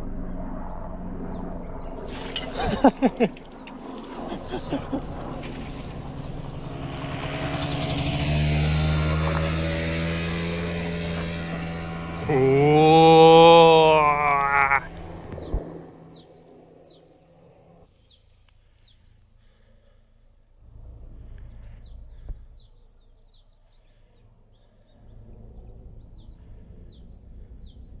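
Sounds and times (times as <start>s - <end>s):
wind rumble on microphone: 14.9s - 16.2s
small bird chirping: 15.3s - 19.3s.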